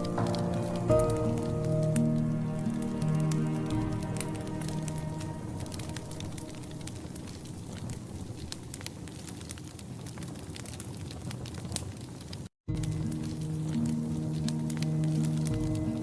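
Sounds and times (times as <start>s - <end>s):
steady hiss: 0.0s - 9.2s, 12.8s - 16.0s
wood fire crackling and popping: 0.0s - 16.0s.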